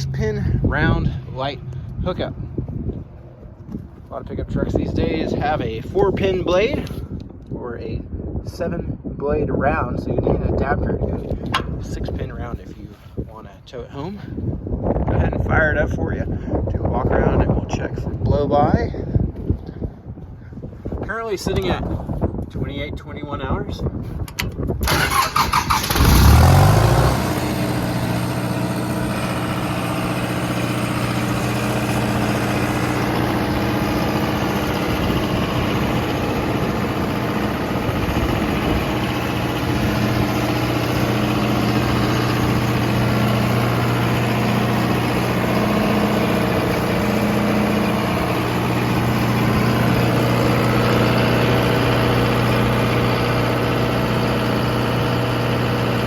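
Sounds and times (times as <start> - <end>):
diesel generator engine starting: 24.3 - 56.0.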